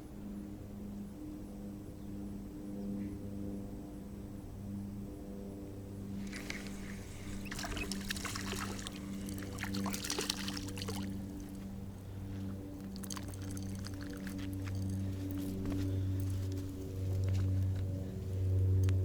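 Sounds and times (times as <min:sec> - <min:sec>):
water splashing and sloshing: 0:06.1 - 0:17.8.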